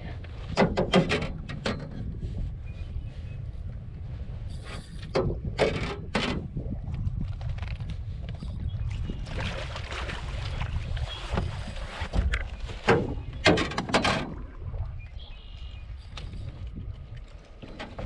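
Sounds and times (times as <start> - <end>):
wind rumble on microphone: 0.0 - 18.0
water slapping against boat hull: 0.4 - 2.3, 5.0 - 15.4.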